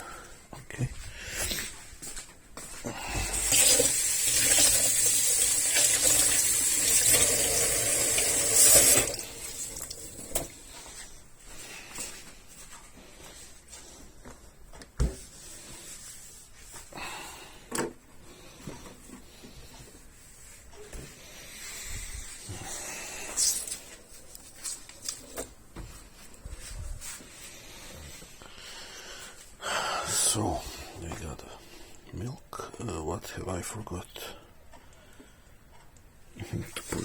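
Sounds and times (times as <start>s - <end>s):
tap water running: 3.2s - 10.5s.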